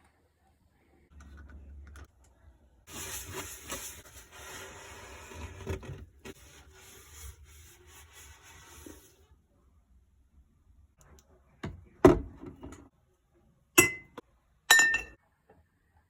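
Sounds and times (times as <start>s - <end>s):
cloth scrubbing a surface: 2.9s - 9.3s.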